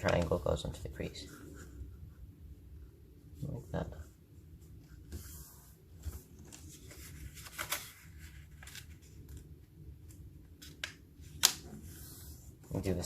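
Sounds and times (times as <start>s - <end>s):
paper rustling: 5.0s - 10.9s
paper crackling as folded: 6.4s - 10.9s.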